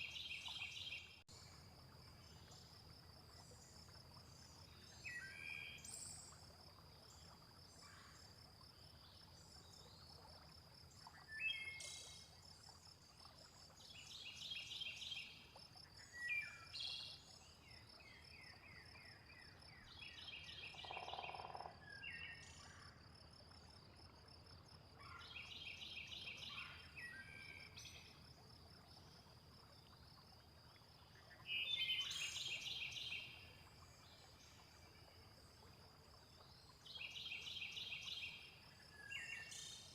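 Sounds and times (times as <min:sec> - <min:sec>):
insect trill: 0:20.7 - 0:21.8
frog croaking: 0:20.8 - 0:21.8.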